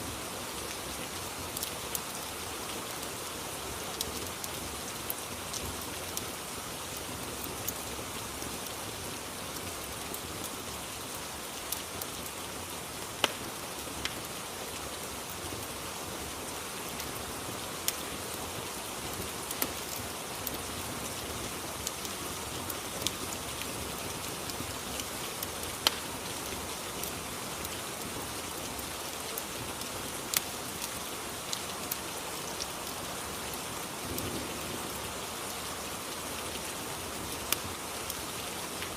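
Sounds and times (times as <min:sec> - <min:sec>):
steady rain: 0:00.0 - 0:38.9
fireplace crackling: 0:00.4 - 0:38.9.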